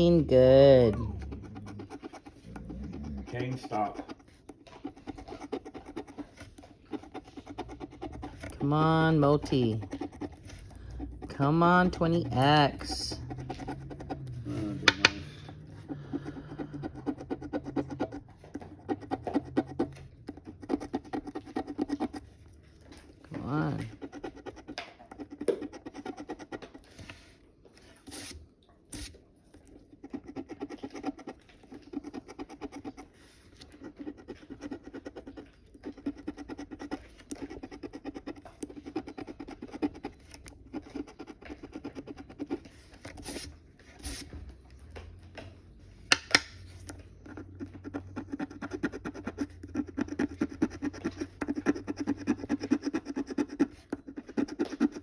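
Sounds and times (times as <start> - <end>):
scratching lottery ticket: 0.0 - 27.4, 29.0 - 44.4, 46.6 - 55.0.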